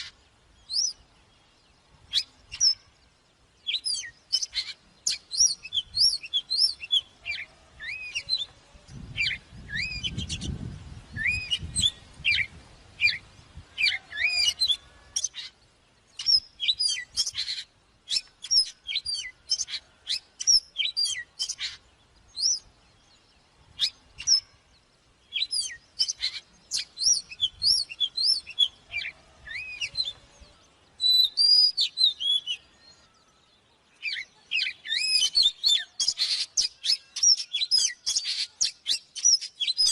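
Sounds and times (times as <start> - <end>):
bird singing whistles: 0.7 - 1.0, 2.1 - 2.9, 3.6 - 8.5, 9.2 - 13.2, 16.2 - 21.8, 22.4 - 22.7, 25.3 - 30.2, 31.0 - 33.2, 34.0 - 39.9.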